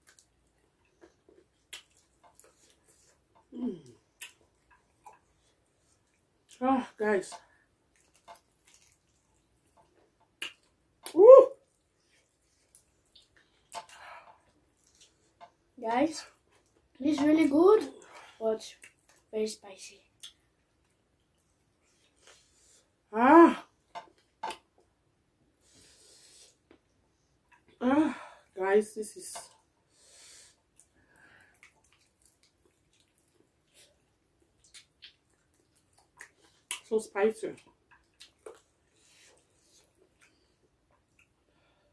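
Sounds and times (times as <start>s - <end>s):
wet mouth clicks while chewing: 0.0s - 5.4s, 7.9s - 11.2s, 31.5s - 36.9s, 37.6s - 41.4s
person exclaiming woo: 11.1s - 11.6s.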